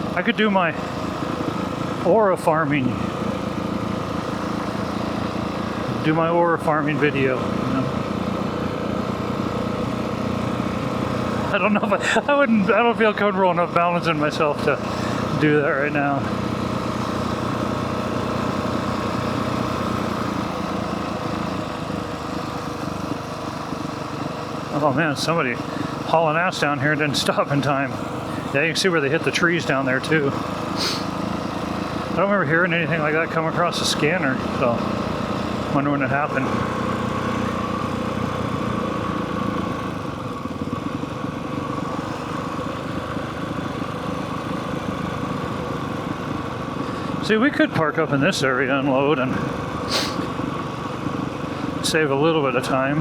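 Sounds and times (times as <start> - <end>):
motorcycle engine at low throttle: 0.0 - 53.0.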